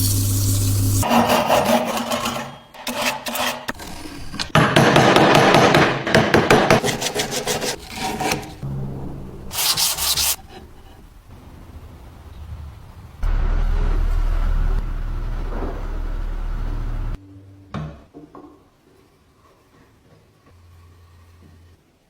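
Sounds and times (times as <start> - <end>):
scraping on metal grater: 1.0 - 4.5, 6.8 - 8.6, 9.5 - 11.0.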